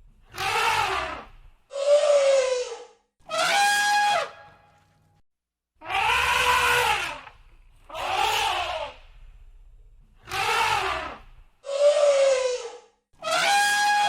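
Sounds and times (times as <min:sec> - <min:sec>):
elephant trumpeting: 0:00.3 - 0:04.6, 0:05.8 - 0:07.3, 0:07.9 - 0:09.0, 0:10.2 - 0:14.0.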